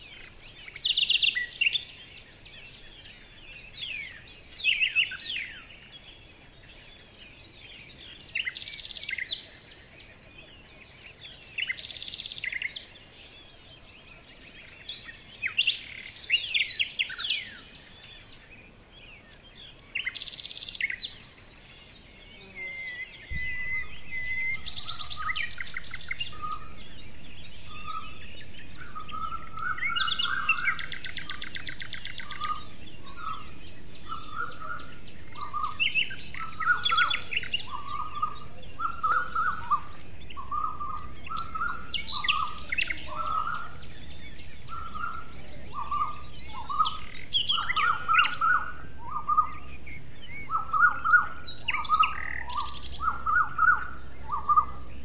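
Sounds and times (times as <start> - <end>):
birds trilling and chirping: 0.0 - 55.0.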